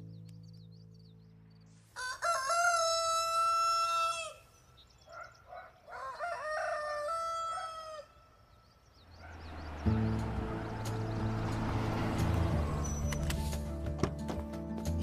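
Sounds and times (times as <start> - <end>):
rooster crowing: 2.0 - 4.4, 5.9 - 8.2.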